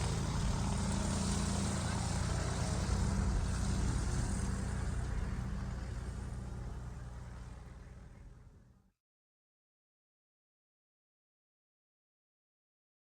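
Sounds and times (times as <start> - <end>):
engine drone: 0.0 - 8.7.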